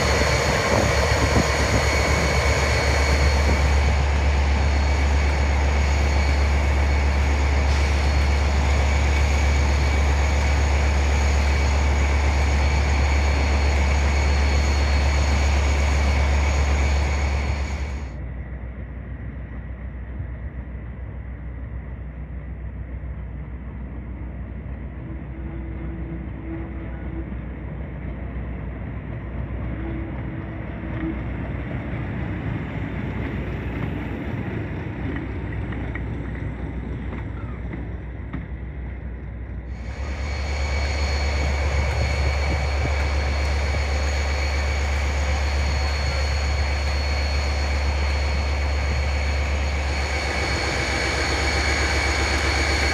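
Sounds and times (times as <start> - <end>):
diesel locomotive engine drone: 0.0 - 52.9
steady high whine: 0.0 - 52.9.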